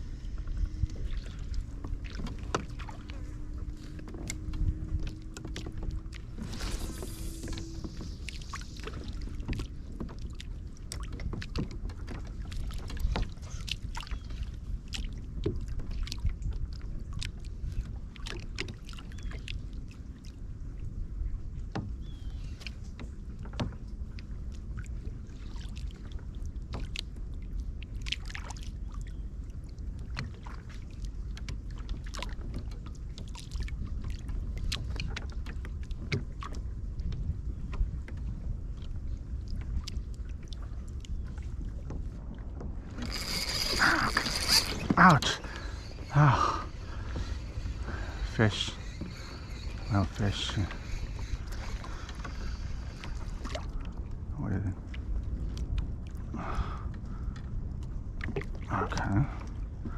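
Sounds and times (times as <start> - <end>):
water and wind against hull: 0.0 - 59.9
small clicks taps and splashes: 57.4 - 59.1.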